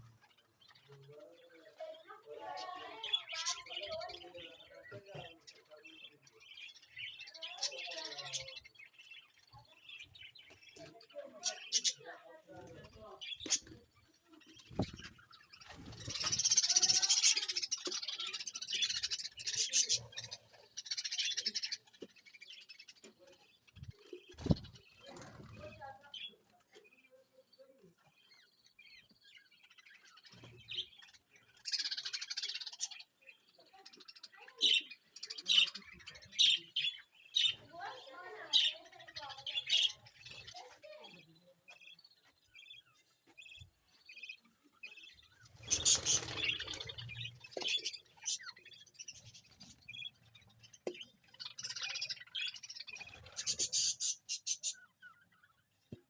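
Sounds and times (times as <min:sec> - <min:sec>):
budgerigars chirping and chattering: 0:00.0 - 0:56.0.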